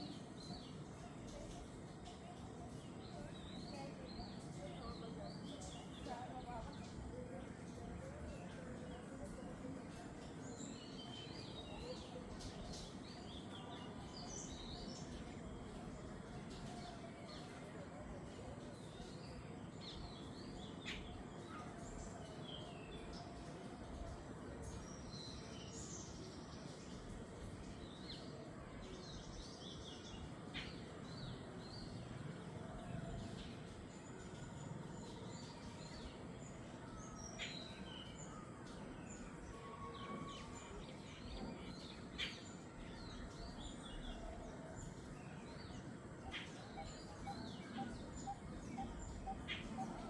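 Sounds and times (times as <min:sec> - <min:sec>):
birds chirping and calling: 0:46.2 - 0:50.0.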